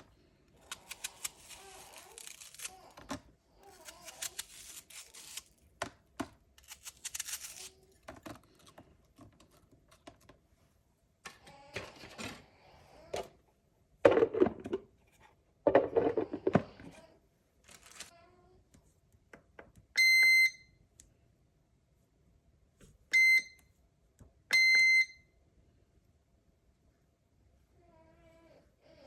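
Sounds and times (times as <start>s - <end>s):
rustling: 15.8s - 18.1s.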